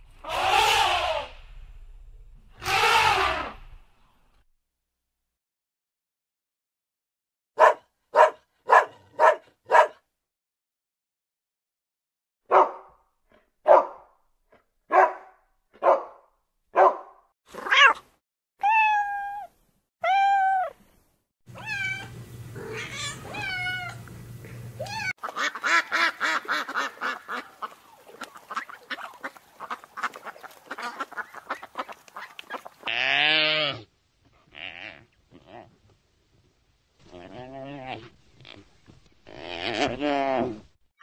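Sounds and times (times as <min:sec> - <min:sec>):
loud animal call: 0:00.2 - 0:01.4, 0:02.6 - 0:03.8
dog barking: 0:07.6 - 0:10.0, 0:12.5 - 0:13.0, 0:13.6 - 0:14.1, 0:14.9 - 0:17.2
cat meowing: 0:17.6 - 0:18.0, 0:18.6 - 0:20.8, 0:21.6 - 0:24.0.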